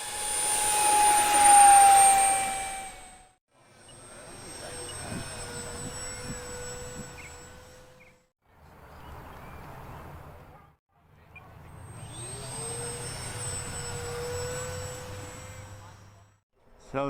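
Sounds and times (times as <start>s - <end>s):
model plane motor whine: 0.0s - 8.3s, 11.5s - 16.4s
wind noise: 4.8s - 7.4s.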